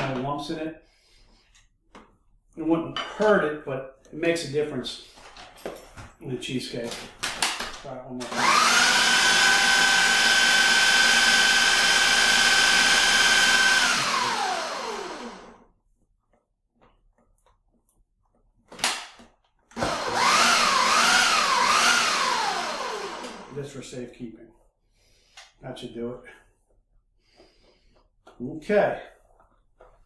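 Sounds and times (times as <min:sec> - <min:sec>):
blender motor whining: 0:08.2 - 0:15.7, 0:19.8 - 0:23.6.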